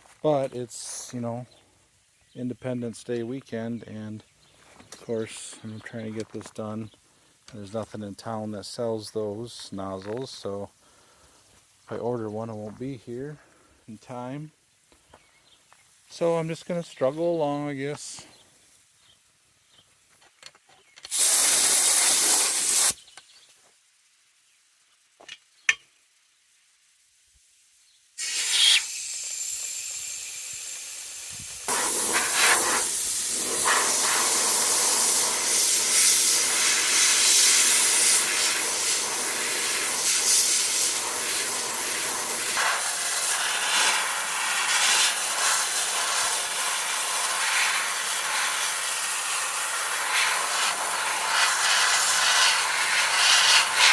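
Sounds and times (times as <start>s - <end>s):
sandblaster hissing: 21.1s - 23.0s, 28.2s - 53.9s.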